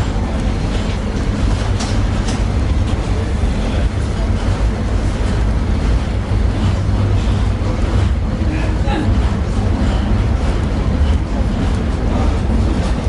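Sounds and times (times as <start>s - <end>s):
tram running gear rumble: 0.0s - 13.0s.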